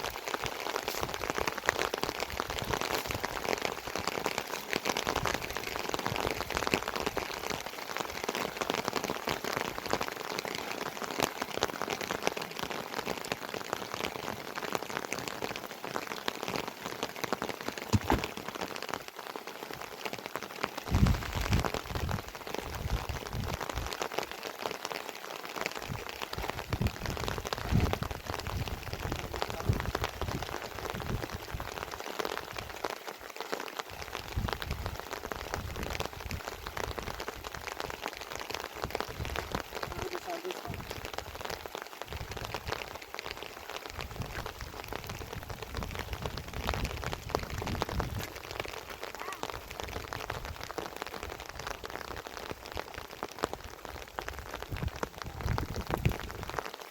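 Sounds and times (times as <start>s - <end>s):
rain falling: 0.0s - 56.9s
low thumps: 17.9s - 18.4s.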